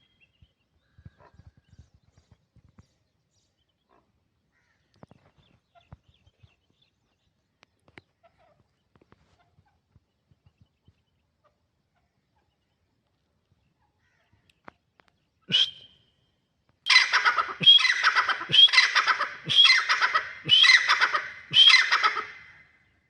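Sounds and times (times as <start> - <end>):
francolin calling harshly: 16.9 - 22.6.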